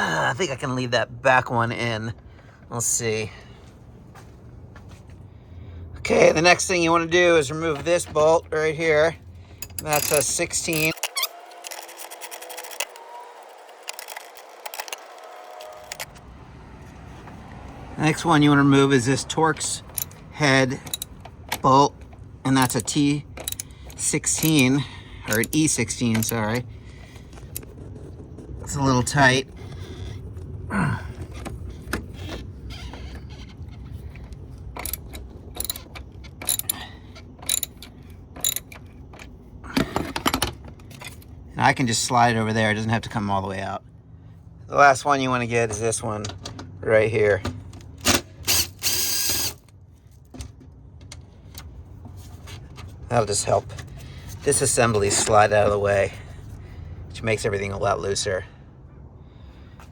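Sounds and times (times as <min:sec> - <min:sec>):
socket wrench clicking: 0:09.6 - 0:16.2, 0:48.0 - 0:49.7.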